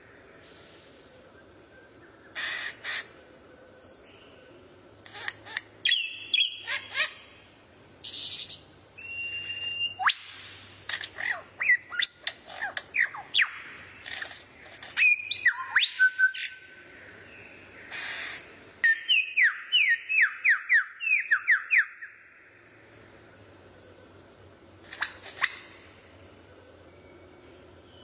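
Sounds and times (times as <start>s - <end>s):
songbird singing whistled notes: 5.8s - 7.2s, 8.0s - 13.8s, 14.4s - 16.7s, 18.8s - 22.4s, 24.9s - 26.1s, 26.7s - 28.0s.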